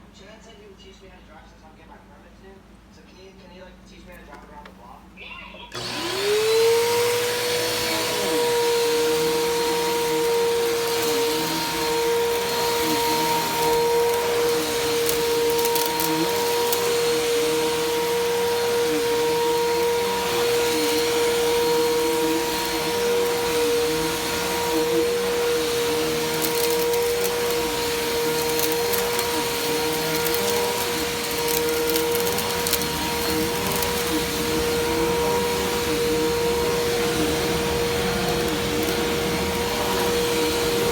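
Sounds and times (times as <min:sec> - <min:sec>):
vacuum cleaner motor whine: 0:05.7 - 0:40.9.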